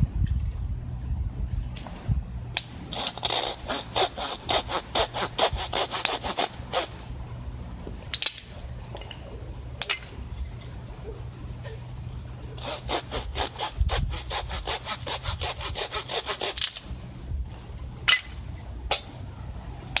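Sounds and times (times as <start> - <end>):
hand saw cutting wood: 2.8 - 7.1, 12.6 - 17.0.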